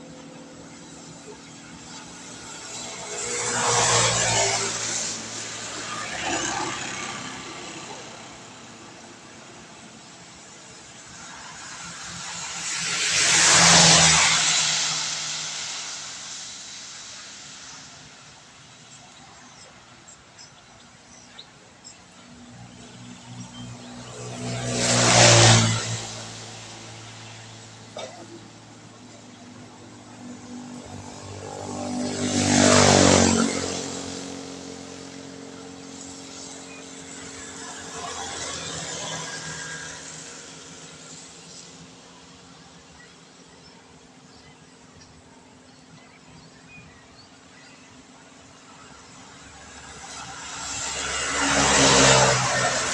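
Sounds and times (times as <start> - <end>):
tyres hissing on wet road: 0.1 - 21.7, 22.3 - 44.7, 48.3 - 52.9
steady rain hiss: 0.6 - 20.3.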